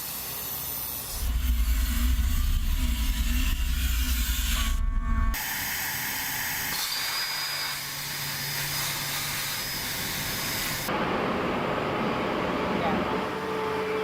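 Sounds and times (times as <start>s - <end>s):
heavy low machinery rumble: 1.1s - 5.5s
thin high whine: 1.1s - 6.8s.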